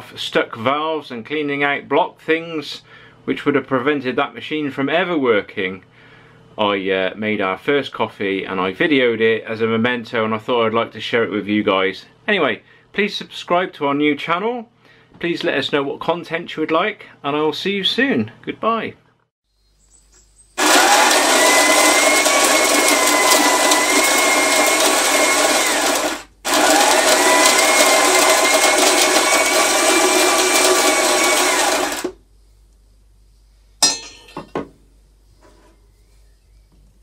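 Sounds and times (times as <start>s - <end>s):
coffee machine whirring: 20.6s - 32.2s.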